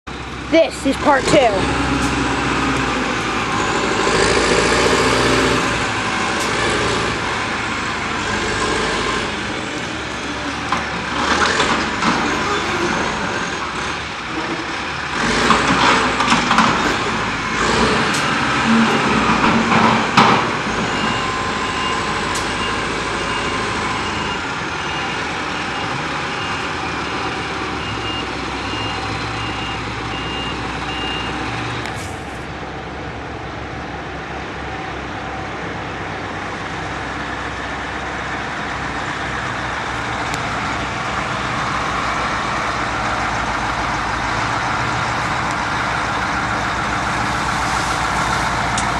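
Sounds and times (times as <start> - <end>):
heavy diesel engines running: 0.1 - 48.9
reversing alarm beeping: 20.6 - 31.4.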